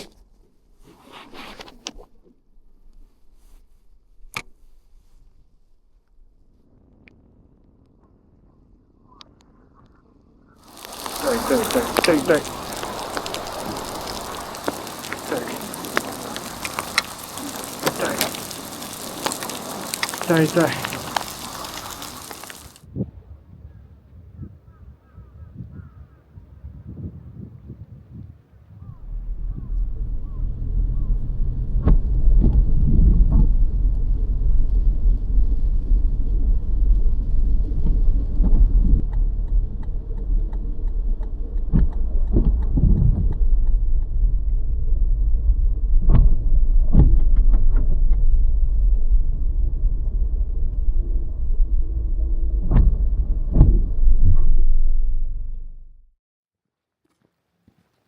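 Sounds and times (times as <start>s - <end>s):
vehicle driving rumble: 10.7s - 22.8s, 28.9s - 56.0s
knocks and bumps: 50.7s - 55.0s.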